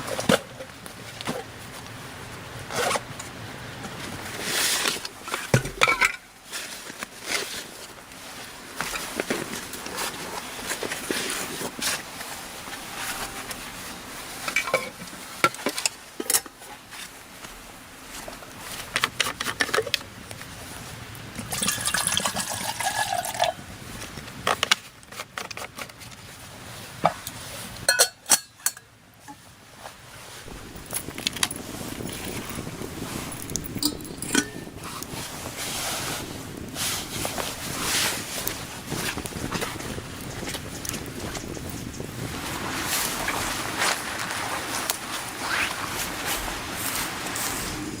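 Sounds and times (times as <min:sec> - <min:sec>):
steady background hiss: 0:00.0 - 0:48.0
dishes clinking and knocking: 0:27.9 - 0:28.8.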